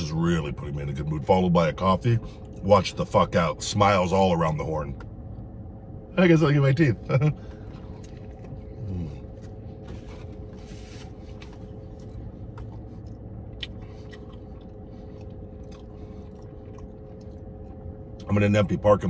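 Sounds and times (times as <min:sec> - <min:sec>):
low car interior hum: 0:00.0 - 0:19.0
man chewing a burger: 0:02.2 - 0:02.6, 0:07.0 - 0:18.4
man humming: 0:08.8 - 0:09.3
wet mouth clicks and smacks: 0:12.5 - 0:17.5.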